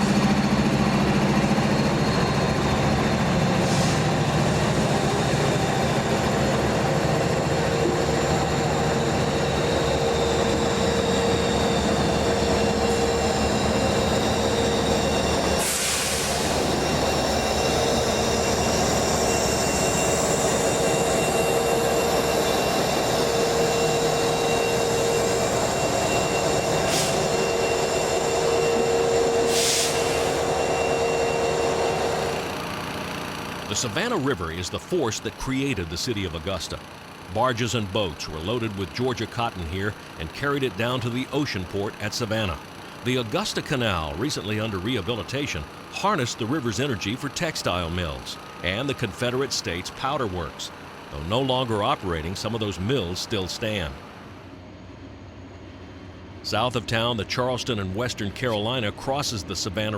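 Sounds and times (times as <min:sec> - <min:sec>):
freight train rumbling past: 0:00.0 - 0:34.3
train wheels squealing on rails: 0:00.0 - 0:34.6.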